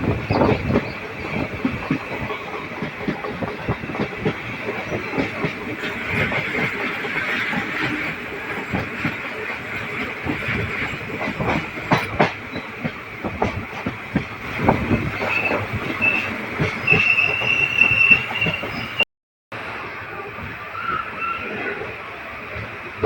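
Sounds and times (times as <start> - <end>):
train wheels clattering on track: 0.0 - 19.0
high wheel squeal: 15.0 - 19.0.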